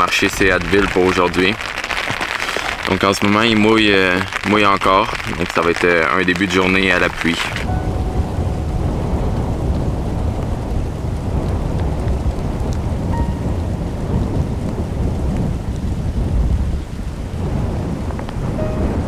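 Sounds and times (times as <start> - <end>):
raindrops hitting camera: 0.0 - 19.0
steady rain falling: 0.0 - 19.0
low rumble: 7.6 - 15.1.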